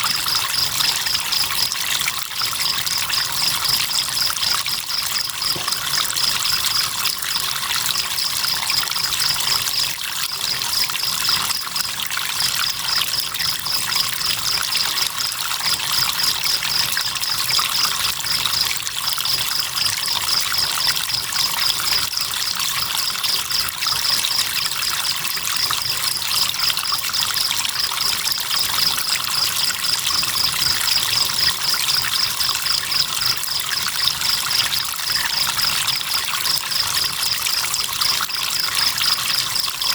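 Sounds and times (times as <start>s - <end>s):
crickets trilling: 0.0s - 1.8s, 2.4s - 39.9s
river water trickling: 0.0s - 39.9s.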